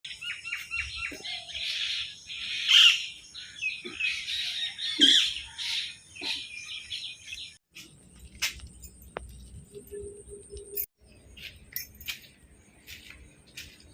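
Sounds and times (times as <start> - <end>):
birds chirping and calling: 0.1 - 7.9.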